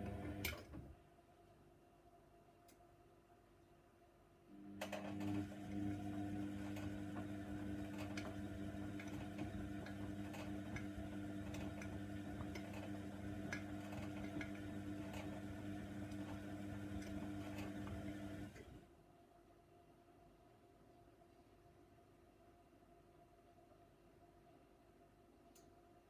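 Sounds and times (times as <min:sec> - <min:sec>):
washer dryer motor humming: 0:00.0 - 0:00.8, 0:04.6 - 0:18.8.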